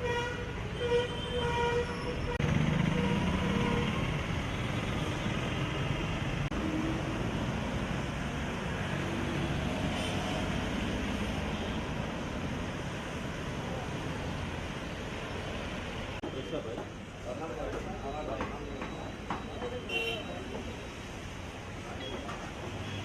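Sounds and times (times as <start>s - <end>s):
vehicle horn honking: 0.0s - 4.0s
road traffic rushing: 0.0s - 23.0s.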